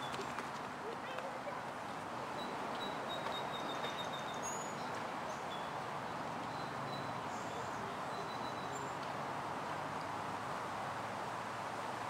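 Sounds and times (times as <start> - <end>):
bird chirps: 2.4 - 5.8, 6.5 - 9.0.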